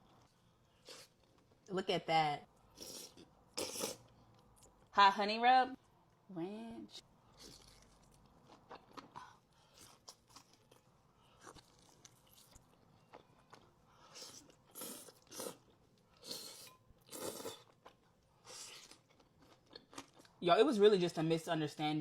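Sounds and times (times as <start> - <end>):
crunching and chewing food: 7.3 - 20.4.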